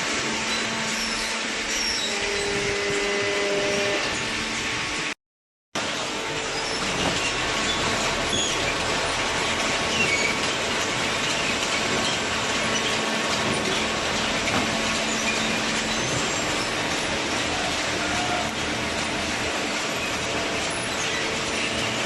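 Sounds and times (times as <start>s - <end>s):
baler machine running: 5.8s - 22.0s.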